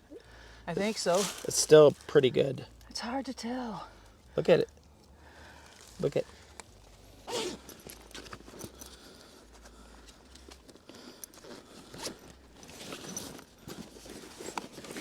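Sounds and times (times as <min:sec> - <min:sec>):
rustling and scraping: 0:00.7 - 0:02.2, 0:05.8 - 0:15.0.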